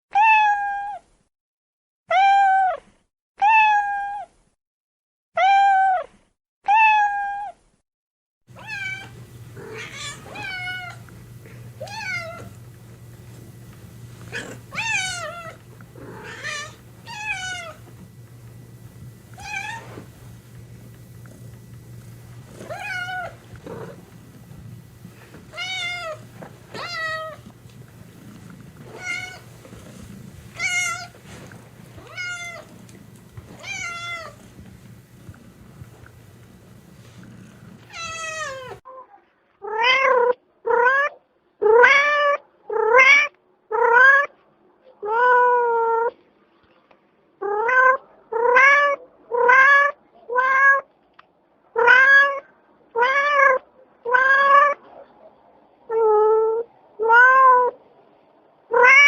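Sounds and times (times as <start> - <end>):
steady low hum: 8.5 - 38.8
cat meowing: 8.6 - 11.0, 14.3 - 17.9, 19.4 - 19.9, 22.6 - 24.0, 25.5 - 27.5, 28.8 - 29.5, 30.6 - 31.2, 32.0 - 32.8, 33.5 - 34.4, 37.9 - 38.8, 47.4 - 50.8, 51.8 - 54.8, 55.9 - 57.8, 58.7 - 59.0.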